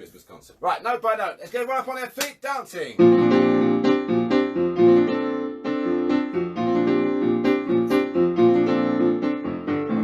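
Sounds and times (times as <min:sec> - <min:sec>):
upbeat piano chords: 0:03.0 - 0:10.0.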